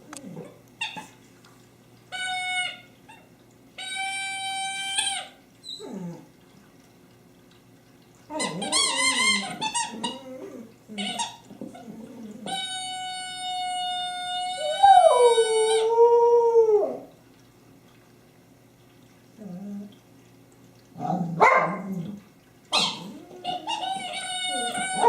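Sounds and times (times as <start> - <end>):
dog howling: 13.5 - 17.1, 23.0 - 25.0.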